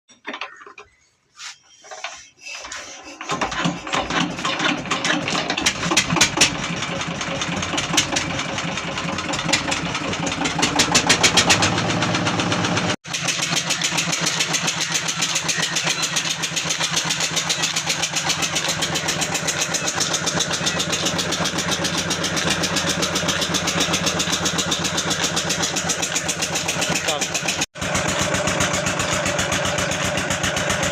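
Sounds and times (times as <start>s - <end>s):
stationary diesel engine running: 3.2s - 30.9s.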